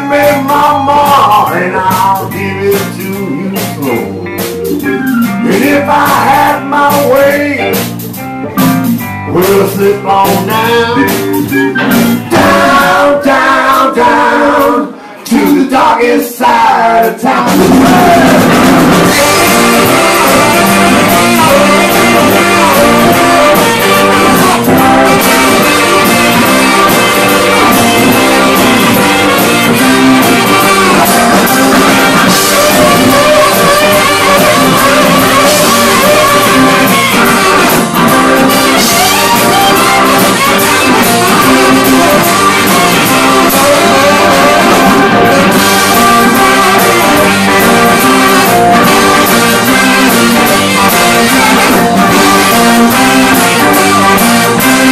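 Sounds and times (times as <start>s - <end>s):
live rock band playing: 0.0s - 54.9s.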